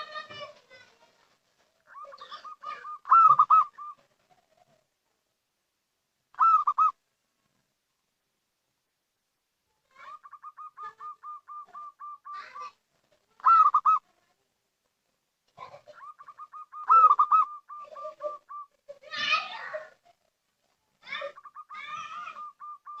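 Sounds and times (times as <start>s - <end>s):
dove cooing: 1.9s - 4.8s, 6.4s - 7.0s, 9.9s - 12.8s, 13.4s - 14.1s, 15.6s - 20.0s, 21.0s - 23.0s.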